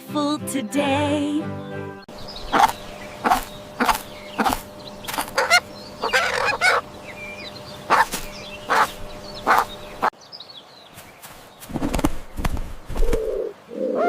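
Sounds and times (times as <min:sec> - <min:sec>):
chickens clucking: 0:02.1 - 0:10.1
low hum: 0:02.1 - 0:10.1.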